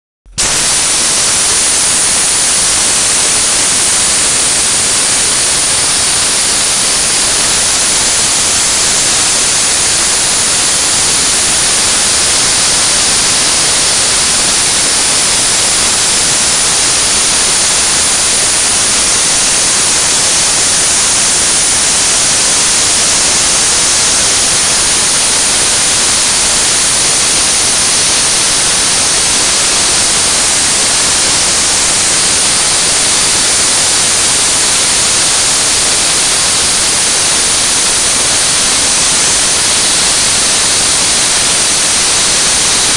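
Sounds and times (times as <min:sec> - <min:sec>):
dry-ice blasting gun hissing: 0:00.3 - 0:42.9.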